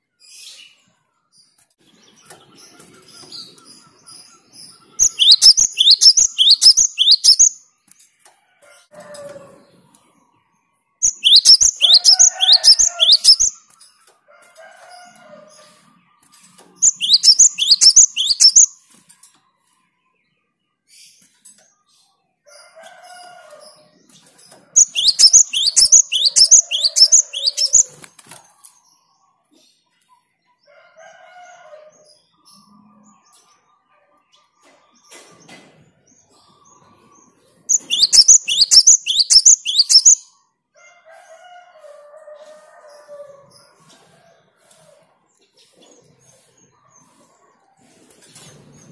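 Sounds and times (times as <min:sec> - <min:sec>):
bird singing rapid high notes: 0:04.2 - 0:07.6, 0:11.0 - 0:13.6, 0:16.8 - 0:18.8, 0:24.8 - 0:28.0, 0:37.7 - 0:40.3.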